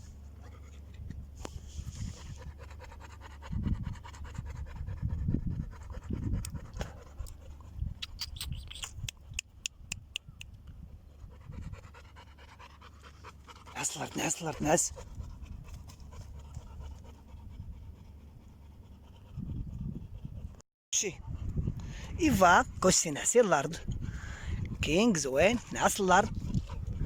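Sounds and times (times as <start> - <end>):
dog panting: 1.8 - 7.8, 11.1 - 20.6, 24.0 - 27.0.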